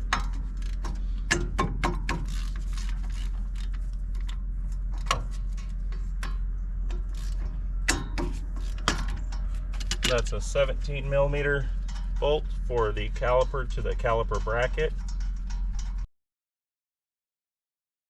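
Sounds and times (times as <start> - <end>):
low hum: 0.0 - 16.1
metal tools clinking: 11.4 - 16.0.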